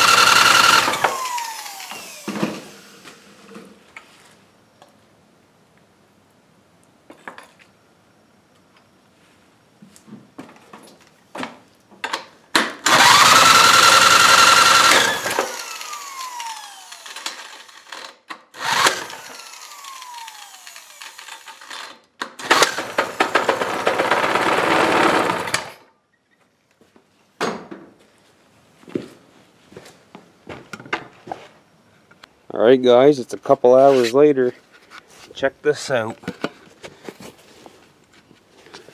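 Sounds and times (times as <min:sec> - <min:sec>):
power drill motor whining: 0:00.0 - 0:03.4, 0:12.8 - 0:25.8.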